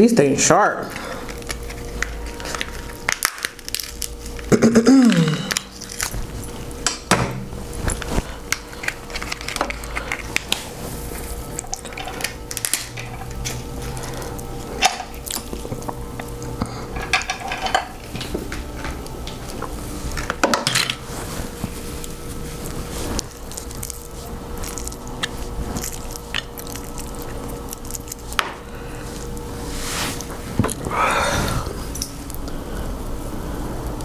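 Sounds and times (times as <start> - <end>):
crab shells cracking by hand: 0.9 - 6.2, 8.4 - 10.7, 11.5 - 20.9, 22.6 - 29.5
dishes and cutlery clinking: 16.9 - 19.7.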